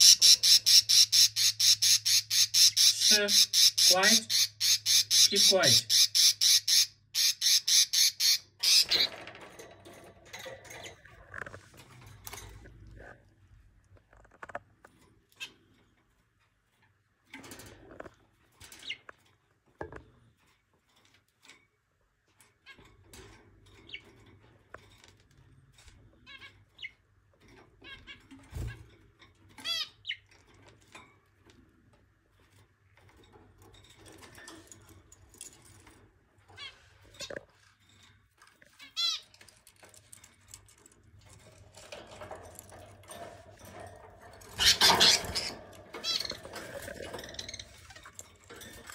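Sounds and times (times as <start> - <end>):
budgerigars squawking: 0.0 - 9.0, 44.6 - 46.5
budgerigars chirping and warbling: 0.0 - 9.2, 44.4 - 48.2.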